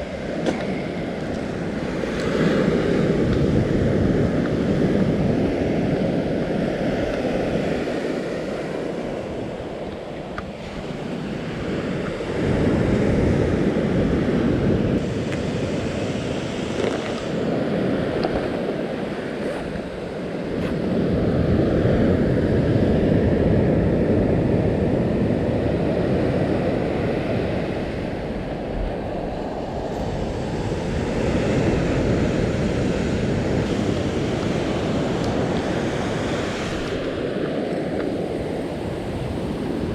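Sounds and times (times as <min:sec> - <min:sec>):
surf waves breaking: 0:00.0 - 0:39.9
wind buffeting microphone: 0:00.0 - 0:39.9.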